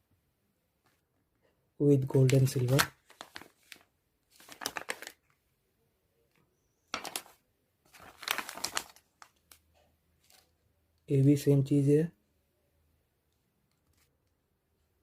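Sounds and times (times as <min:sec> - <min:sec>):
packaging crinkling and rustling: 0:02.1 - 0:05.4, 0:07.0 - 0:09.6.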